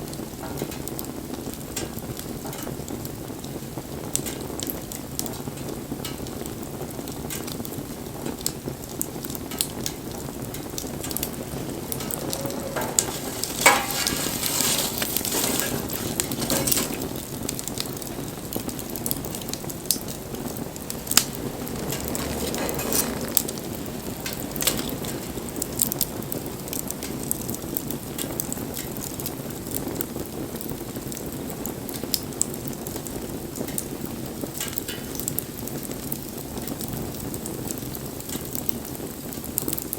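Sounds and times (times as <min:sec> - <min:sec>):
bonfire crackling and popping: 0:00.0 - 0:39.9
fire hissing: 0:08.8 - 0:36.1.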